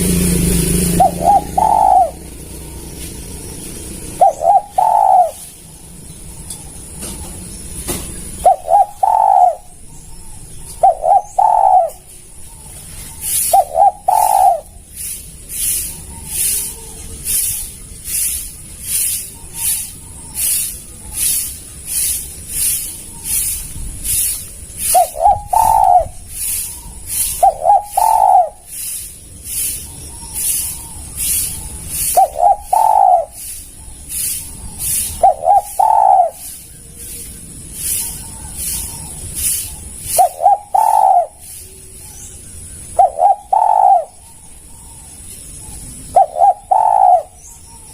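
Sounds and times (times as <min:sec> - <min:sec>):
dove cooing: 0:00.0 - 0:02.8, 0:03.6 - 0:05.6, 0:06.4 - 0:47.9
high pulsing hiss: 0:00.0 - 0:47.9
faint dove coos: 0:01.0 - 0:02.2, 0:04.2 - 0:05.5, 0:10.8 - 0:12.1, 0:13.2 - 0:14.8, 0:24.9 - 0:28.7, 0:32.0 - 0:33.5, 0:35.0 - 0:36.6, 0:40.1 - 0:41.6, 0:43.0 - 0:44.2, 0:46.2 - 0:47.4.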